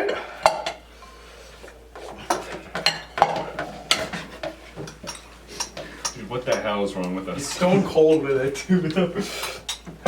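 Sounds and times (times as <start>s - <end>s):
dishes and cutlery clinking: 2.0s - 8.5s, 9.3s - 10.0s.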